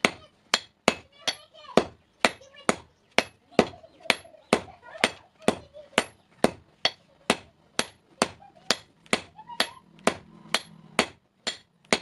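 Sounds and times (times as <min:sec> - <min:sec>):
hammer striking steel on anvil: 0:00.0 - 0:02.4, 0:06.0 - 0:12.0.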